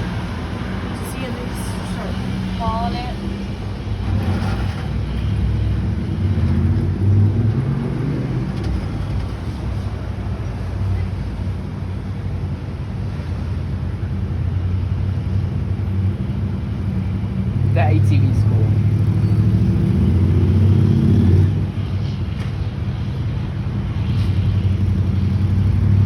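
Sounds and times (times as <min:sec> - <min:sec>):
large vehicle engine drone: 0:00.0 - 0:26.0.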